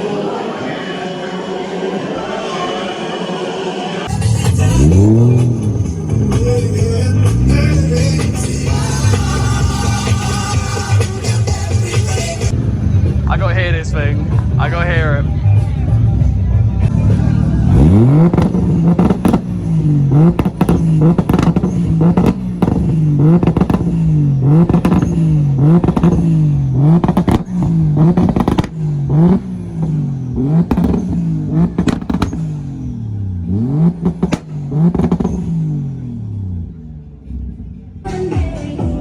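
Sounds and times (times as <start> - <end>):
car engine revving: 4.0 - 38.0
sharp cracks: 17.8 - 32.8, 33.8 - 35.5.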